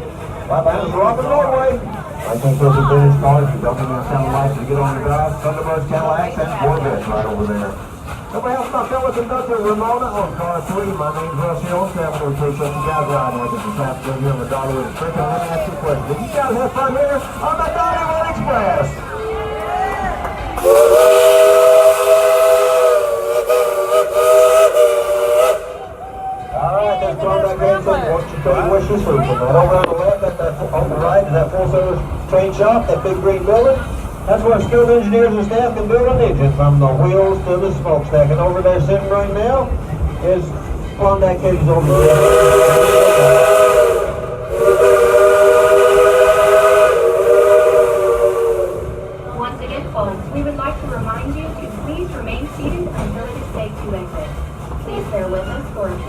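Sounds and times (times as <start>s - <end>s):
steam locomotive whistle blast: 20.6s - 26.6s, 41.8s - 49.2s.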